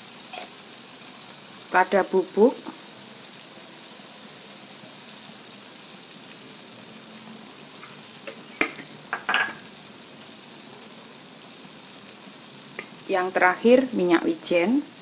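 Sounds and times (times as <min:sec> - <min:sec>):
vegetables sizzling in a wok: 0:00.0 - 0:15.0.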